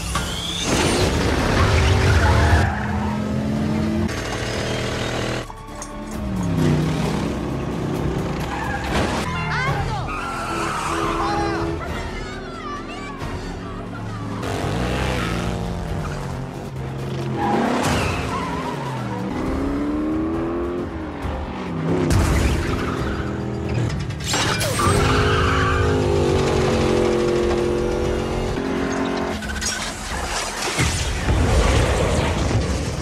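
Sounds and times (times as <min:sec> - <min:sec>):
car engines revving hard: 0:01.1 - 0:05.5, 0:10.1 - 0:24.1, 0:24.8 - 0:30.2
film score music: 0:01.3 - 0:33.0.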